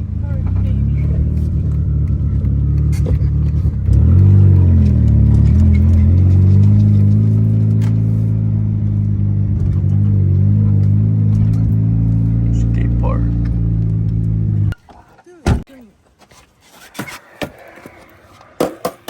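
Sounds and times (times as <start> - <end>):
car engine drone: 0.0 - 14.8.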